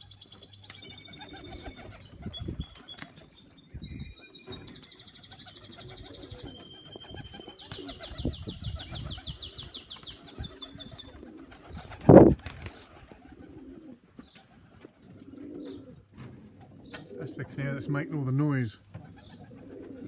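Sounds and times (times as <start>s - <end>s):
canary singing trills: 0.0s - 12.0s
pigeons cooing: 0.7s - 3.0s, 4.5s - 20.0s.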